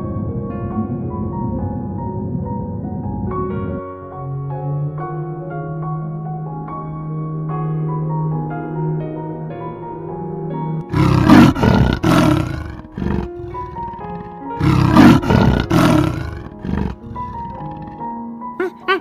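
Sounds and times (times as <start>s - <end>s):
soft keyboard background music: 0.0s - 19.0s
wild animal roaring: 10.9s - 18.1s.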